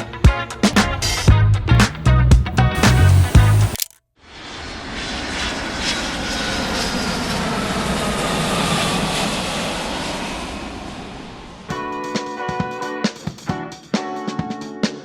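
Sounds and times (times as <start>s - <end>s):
aircraft engine passing: 4.3s - 12.1s.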